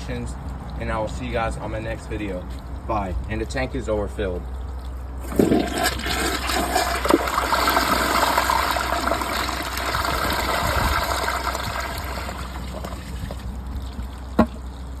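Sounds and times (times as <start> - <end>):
toilet water rushing: 5.2 - 14.8.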